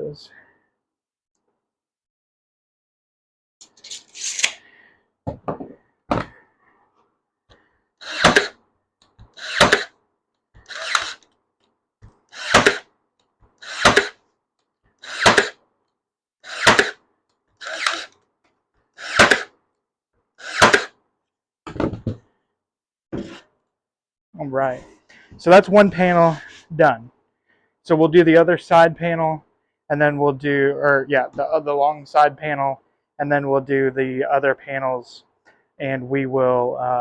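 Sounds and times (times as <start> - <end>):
nail gun shots: 8.1 - 8.6, 9.4 - 9.9, 12.4 - 12.8, 13.7 - 14.2, 15.1 - 15.6, 16.5 - 17.0, 19.1 - 19.5, 20.5 - 20.9.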